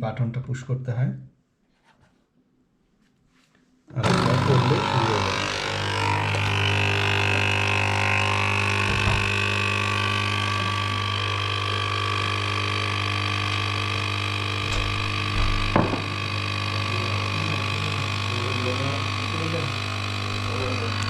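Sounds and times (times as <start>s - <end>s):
coffee machine pump buzzing: 3.9s - 21.0s
short knocks: 8.8s - 9.4s, 14.6s - 16.2s.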